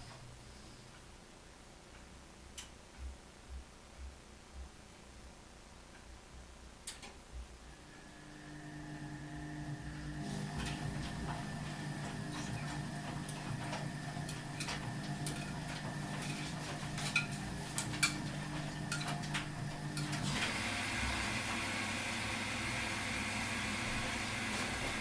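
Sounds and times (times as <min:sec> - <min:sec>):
washing machine humming: 0:07.6 - 0:25.0.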